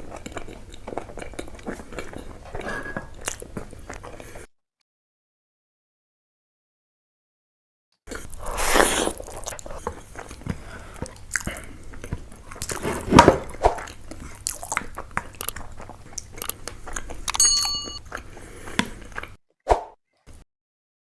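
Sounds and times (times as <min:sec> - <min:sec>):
close-miked chewing: 0:00.0 - 0:04.5, 0:08.1 - 0:12.9, 0:13.8 - 0:19.4
wet mouth clicks and smacks: 0:14.5 - 0:17.7.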